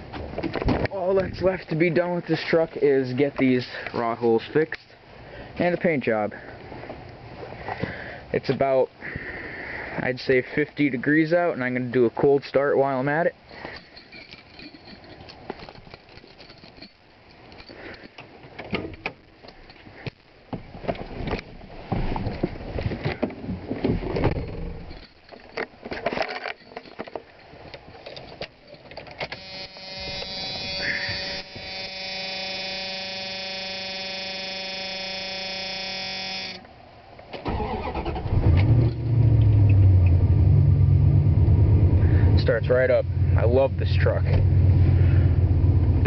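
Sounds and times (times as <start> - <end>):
steady tone: 29.2 - 36.7
starter motor cranking: 37.4 - 38.7.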